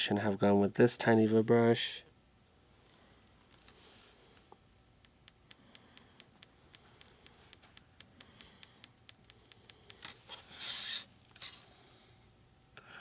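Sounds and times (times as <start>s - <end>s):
rubbing scrape: 10.3s - 11.6s.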